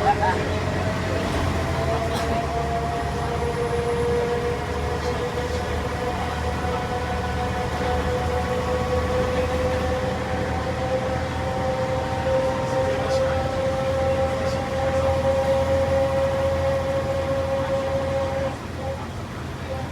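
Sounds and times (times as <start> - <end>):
bus engine rumble: 0.0 - 19.9.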